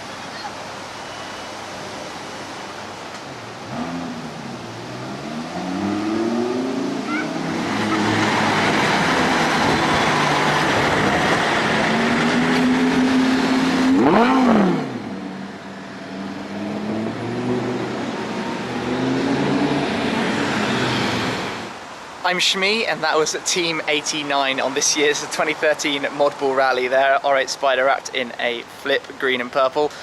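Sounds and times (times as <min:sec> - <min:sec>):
sports car engine revving: 0:03.6 - 0:21.7.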